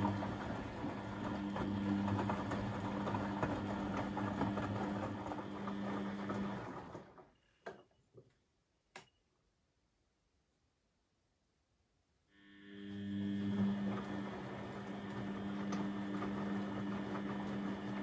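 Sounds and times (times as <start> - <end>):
washing machine motor humming: 0.0 - 7.4, 12.4 - 18.0.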